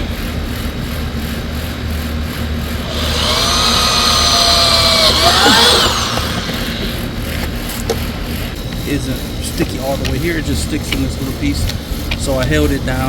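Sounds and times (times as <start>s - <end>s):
power drill whining: 2.8s - 7.8s
steady low hum: 2.8s - 7.8s.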